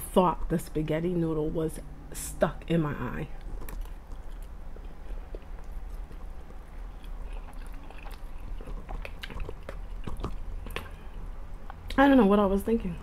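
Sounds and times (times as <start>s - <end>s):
low steady hum: 0.0s - 13.0s
chewing spaghetti: 3.3s - 12.0s.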